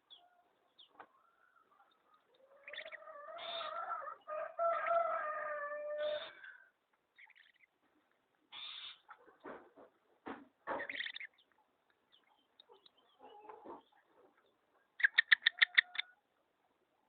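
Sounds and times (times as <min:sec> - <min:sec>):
bird calling: 0:00.0 - 0:04.2, 0:08.5 - 0:09.1.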